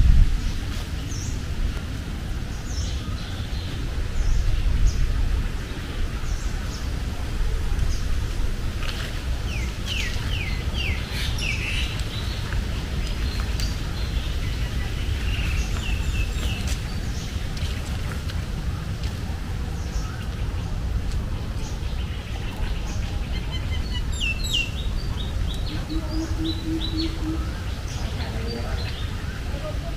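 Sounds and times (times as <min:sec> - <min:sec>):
steady low rumble: 0:00.0 - 0:29.9
birds chirping and calling: 0:09.4 - 0:17.8, 0:21.4 - 0:29.9.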